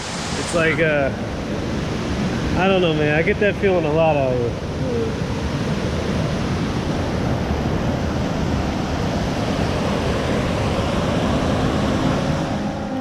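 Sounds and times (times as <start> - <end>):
waterfall rushing: 0.0 - 5.4, 7.7 - 13.0.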